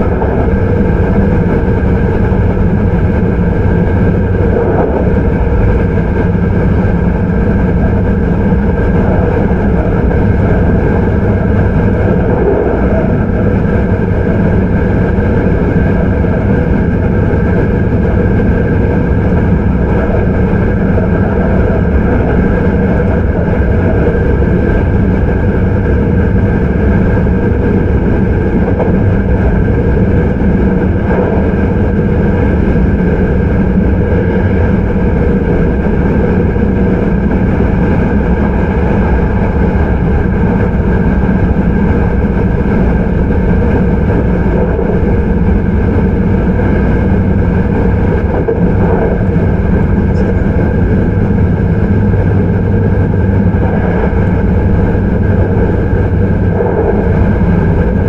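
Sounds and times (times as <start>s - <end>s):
steady train motor hum: 0.0s - 58.0s
train wheels rumbling on rail: 0.0s - 58.0s.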